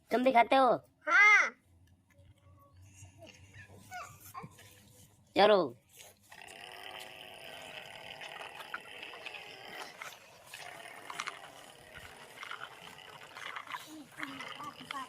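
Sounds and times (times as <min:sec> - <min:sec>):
toy tractor motor whirring: 0:06.0 - 0:15.0.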